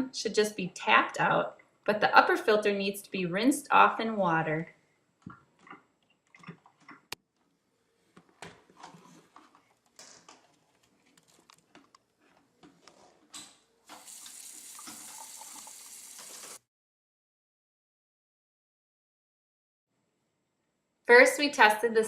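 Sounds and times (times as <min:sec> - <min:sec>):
tap running into sink: 0:13.9 - 0:16.6.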